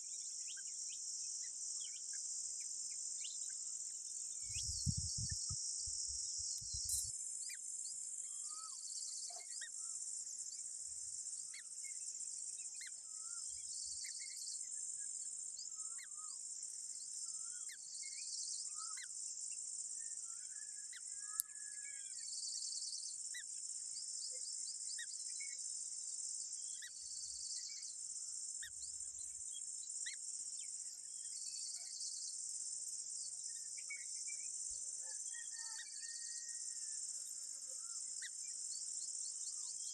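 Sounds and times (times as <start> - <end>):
insect chorus: 0.0 - 39.9
bird chirps: 4.4 - 7.6.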